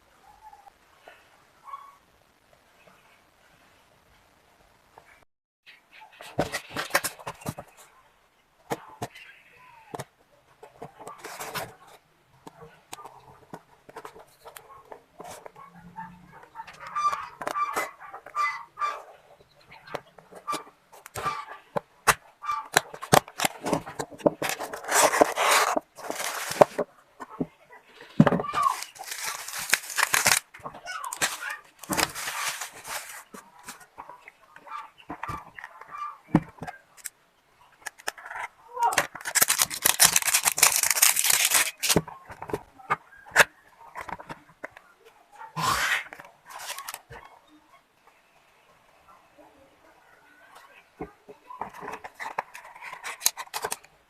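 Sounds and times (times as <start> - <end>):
wrapping rustling and crinkling: 22.7 - 26.9, 27.9 - 34.1, 37.8 - 42.1, 46.2 - 47.2, 51.7 - 53.9
packaging clicks and taps: 28.2 - 33.8, 38.9 - 42.6, 52.0 - 53.9.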